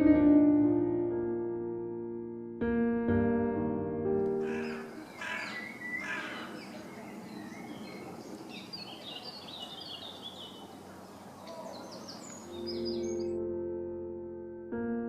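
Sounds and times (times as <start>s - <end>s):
outdoor background hiss: 4.4s - 13.2s
small birds chirping: 4.4s - 13.4s.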